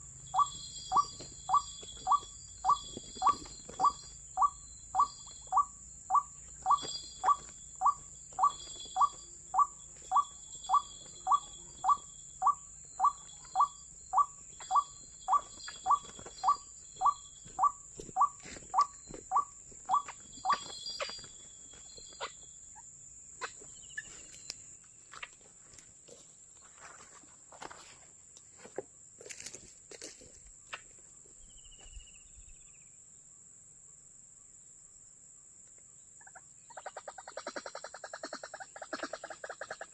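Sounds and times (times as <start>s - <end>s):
waterhen calling: 0.3s - 21.2s.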